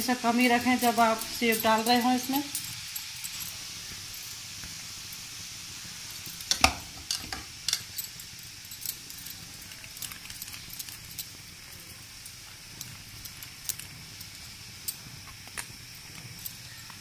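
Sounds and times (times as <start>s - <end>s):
food sizzling in hot oil: 0.0s - 17.0s
utensil clinking in pan: 0.4s - 4.4s.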